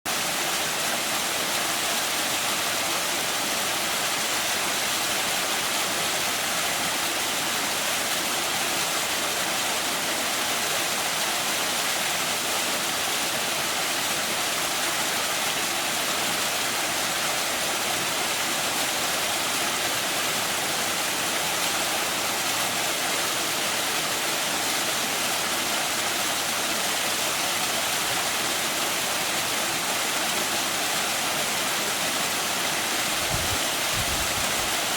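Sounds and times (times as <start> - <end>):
waterfall splashing: 0.1 - 34.9.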